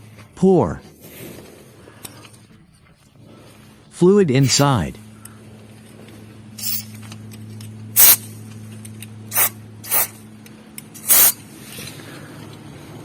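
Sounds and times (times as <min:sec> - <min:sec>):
aerosol spray hissing: 0:06.6 - 0:06.8, 0:08.0 - 0:08.2, 0:09.3 - 0:10.2, 0:11.0 - 0:11.4.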